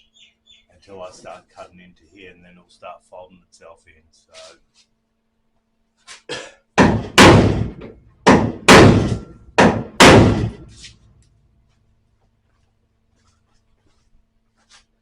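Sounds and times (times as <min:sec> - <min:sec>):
hammer on sheet metal: 0:06.8 - 0:10.8.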